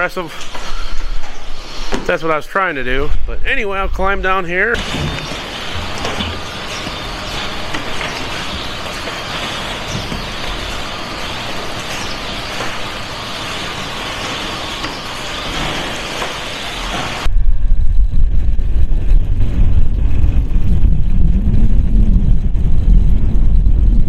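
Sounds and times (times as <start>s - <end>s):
hiss of running machinery: 0.0s - 17.3s
farm vehicle rumbling: 3.7s - 17.3s.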